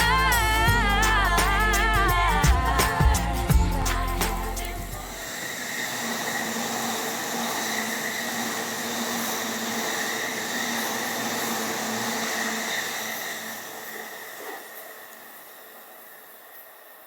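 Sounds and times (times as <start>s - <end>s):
high whine: 0.0s - 7.1s
train rail noise: 5.2s - 17.0s.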